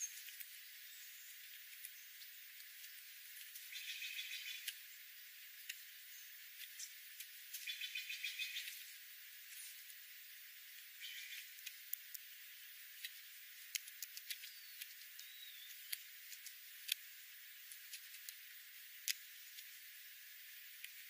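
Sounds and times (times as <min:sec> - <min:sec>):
steady hiss: 0:00.0 - 0:21.0
faint clicks: 0:13.0 - 0:17.0, 0:19.0 - 0:19.7.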